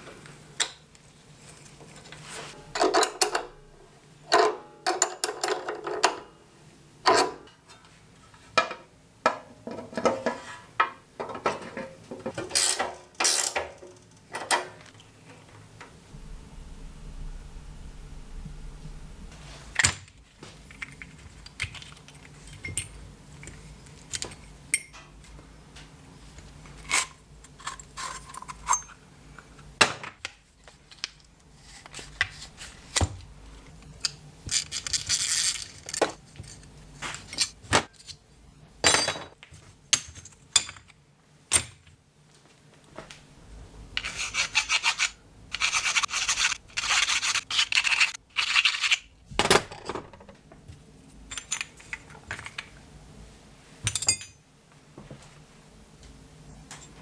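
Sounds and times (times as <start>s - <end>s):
rubbing or scraping: 44.0s - 49.0s.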